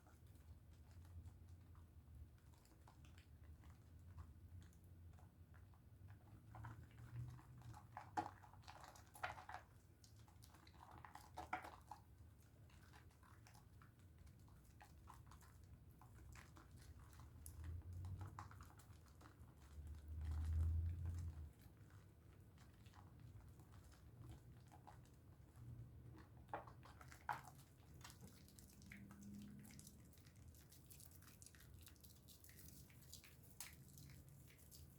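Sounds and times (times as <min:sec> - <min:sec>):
soap lathering in hands: 0:06.4 - 0:34.9.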